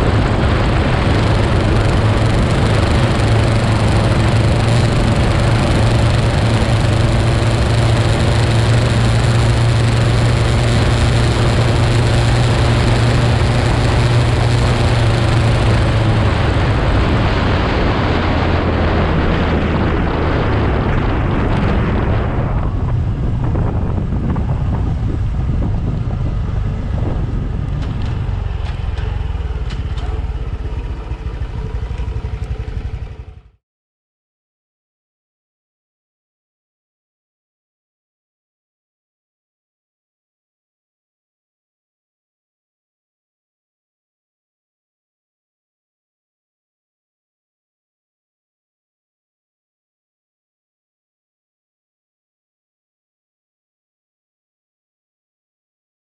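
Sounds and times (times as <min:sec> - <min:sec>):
wind noise on microphone: 0:00.0 - 0:33.4
motorcycle engine running: 0:00.0 - 0:33.6.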